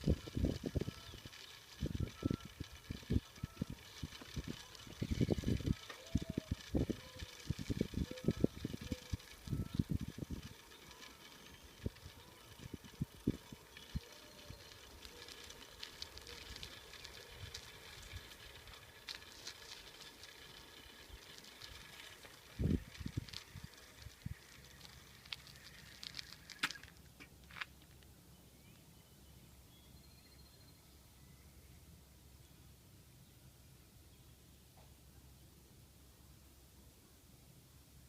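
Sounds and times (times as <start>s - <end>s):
bicycle clicks and rattles: 0.0s - 28.1s.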